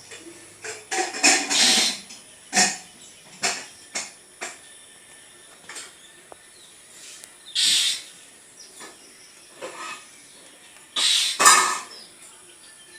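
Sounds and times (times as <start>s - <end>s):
bird giving harsh scratchy calls: 1.1s - 2.8s, 7.0s - 8.2s, 11.0s - 11.9s.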